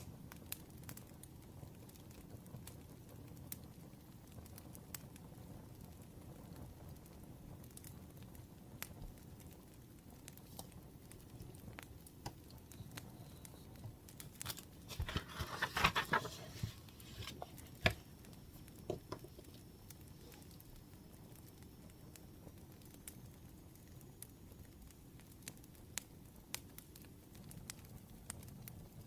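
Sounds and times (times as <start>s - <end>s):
sharp pops of fire: 0.0s - 14.9s, 16.7s - 29.0s
wood fire crackling: 0.0s - 29.0s
crinkly rustling: 12.4s - 20.7s.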